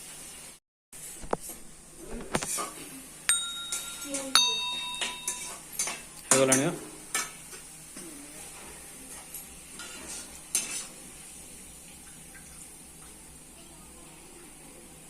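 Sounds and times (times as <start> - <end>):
faint frying sizzle: 0.0 - 15.0
metal spoon scraping a pot: 9.8 - 10.9.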